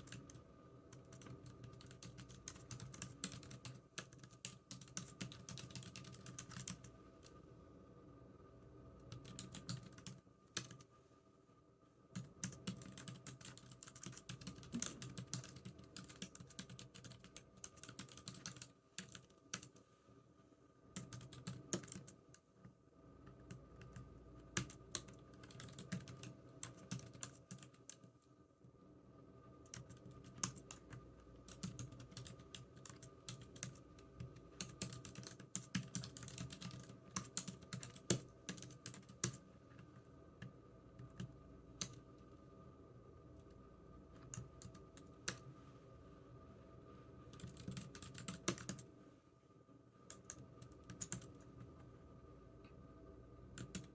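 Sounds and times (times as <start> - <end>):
typing on computer keyboard: 0.0 - 7.4, 9.0 - 10.9, 12.2 - 19.8, 21.0 - 22.4, 23.3 - 28.1, 29.6 - 39.4, 47.3 - 48.8, 50.1 - 51.5, 53.6 - 53.9.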